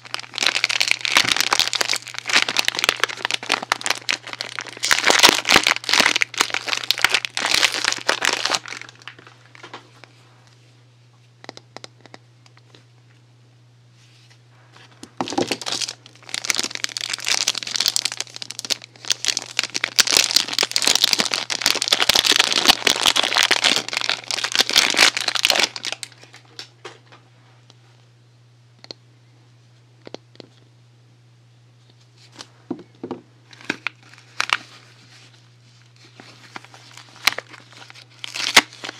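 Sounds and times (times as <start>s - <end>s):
wrapper crinkling and tearing: 0.0s - 9.8s, 15.2s - 26.6s, 33.5s - 38.9s
faint low hum: 0.0s - 38.9s.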